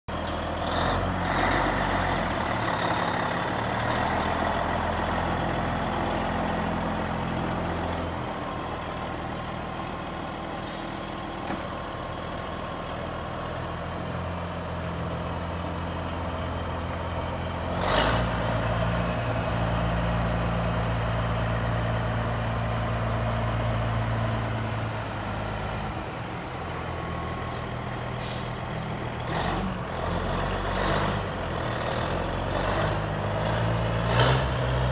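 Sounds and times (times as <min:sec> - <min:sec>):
diesel truck engine running: 0:00.1 - 0:34.9
sharp air hiss: 0:28.2 - 0:28.8.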